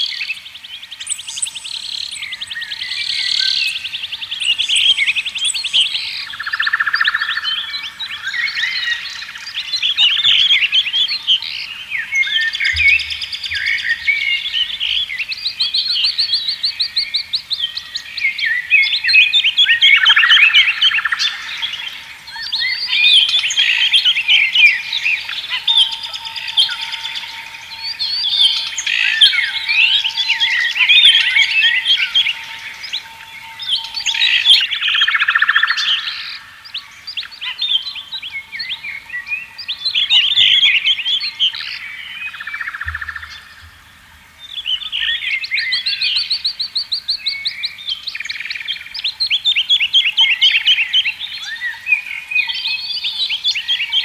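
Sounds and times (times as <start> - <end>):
songbirds chirping: 0.0 - 54.0
faint steady high tone: 19.7 - 36.0.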